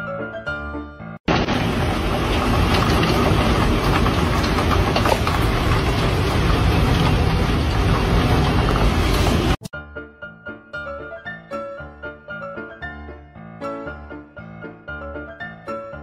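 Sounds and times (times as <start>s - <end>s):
heavy rain and wind: 1.3s - 9.6s.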